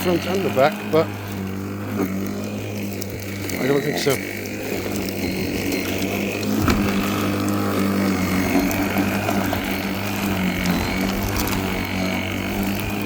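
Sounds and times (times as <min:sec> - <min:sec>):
electric lawnmower humming: 0:00.0 - 0:13.0.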